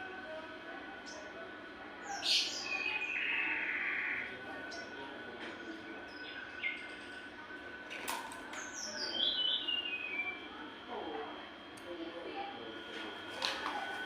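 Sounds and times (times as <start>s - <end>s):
songbird chirping: 2.0s - 7.2s, 8.2s - 10.5s.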